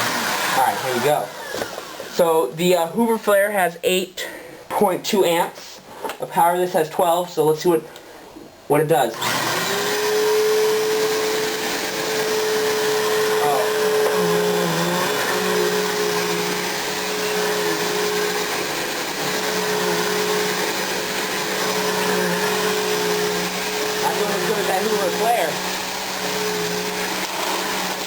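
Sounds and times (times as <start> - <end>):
vacuum cleaner whining hum: 0.0 - 3.6, 9.2 - 28.0.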